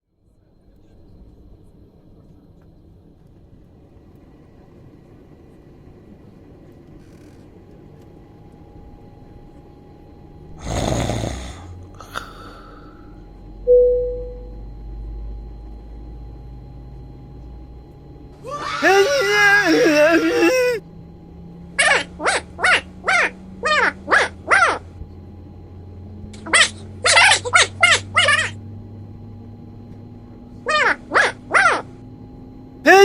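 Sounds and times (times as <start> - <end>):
steady low hum: 0.1 - 33.0
man snoring: 10.6 - 13.0
short loud tone: 13.7 - 14.6.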